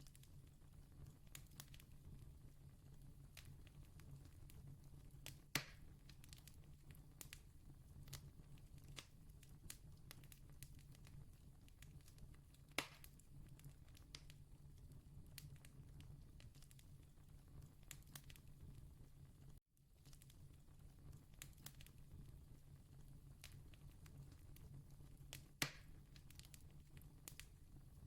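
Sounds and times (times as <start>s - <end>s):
campfire crackling: 0.0s - 18.5s, 20.0s - 28.0s.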